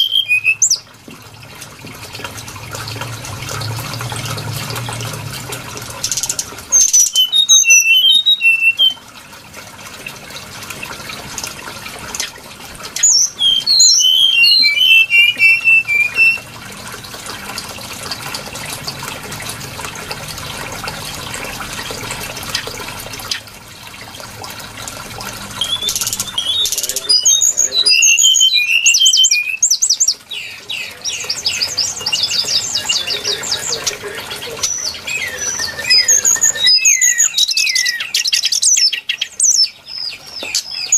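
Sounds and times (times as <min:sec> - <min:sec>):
bird song of whistled notes: 0:00.0 - 0:00.8, 0:06.1 - 0:09.0, 0:13.0 - 0:16.4, 0:25.6 - 0:33.9, 0:34.5 - 0:40.9.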